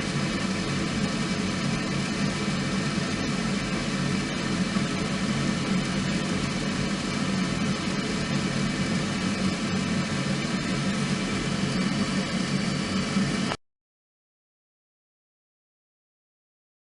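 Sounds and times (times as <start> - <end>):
flames rushing: 0.0 - 13.6.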